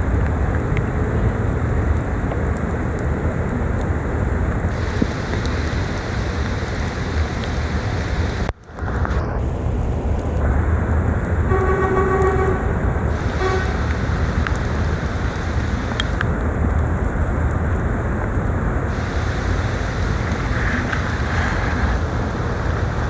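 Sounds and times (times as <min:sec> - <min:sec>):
wind and rain on microphone: 0:00.0 - 0:23.0
vehicle horn: 0:11.5 - 0:14.2.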